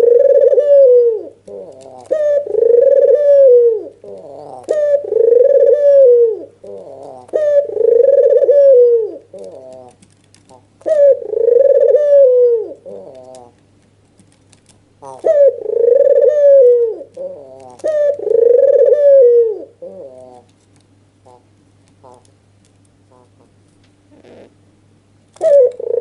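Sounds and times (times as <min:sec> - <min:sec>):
dove cooing: 0:00.0 - 0:13.6, 0:15.0 - 0:20.5, 0:25.4 - 0:26.0.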